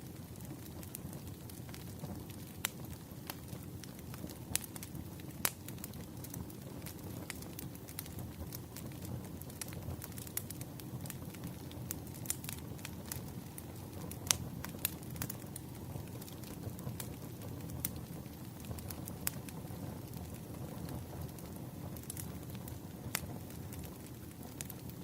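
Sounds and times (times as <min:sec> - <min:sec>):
campfire crackling and popping: 0:00.0 - 0:25.0.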